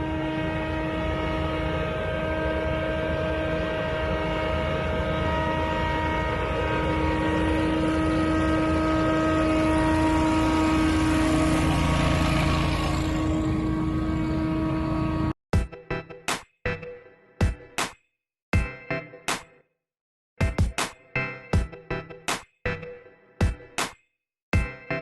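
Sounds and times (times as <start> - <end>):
leaf blowers running: 4.8 - 15.3.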